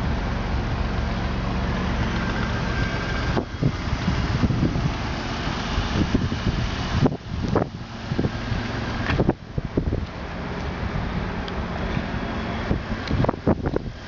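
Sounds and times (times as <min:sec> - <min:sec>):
car engine idling: 0:00.0 - 0:14.0
wind noise on microphone: 0:02.0 - 0:14.0.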